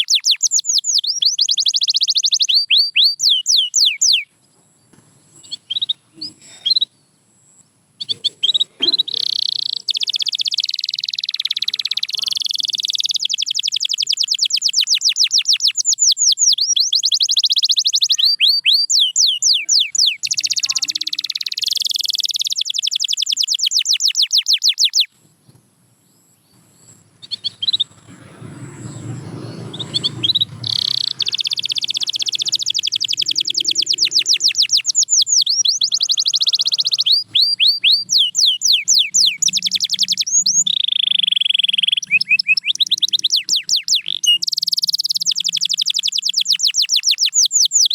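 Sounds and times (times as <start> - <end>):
canary singing trills: 0.0 - 4.4, 5.3 - 25.1, 26.2 - 47.9
faint low rumble: 26.4 - 38.2.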